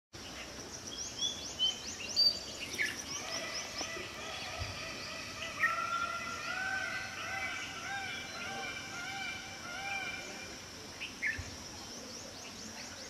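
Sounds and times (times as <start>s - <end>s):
birds chirping: 0.2s - 13.0s
lower arching bird call: 2.7s - 10.6s.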